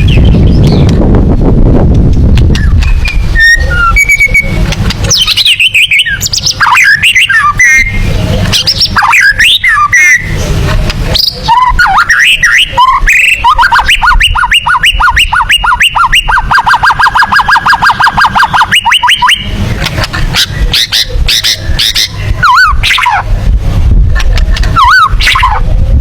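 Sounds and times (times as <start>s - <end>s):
bird singing whistled phrases: 2.6s - 10.4s, 11.2s - 19.4s, 24.8s - 25.6s.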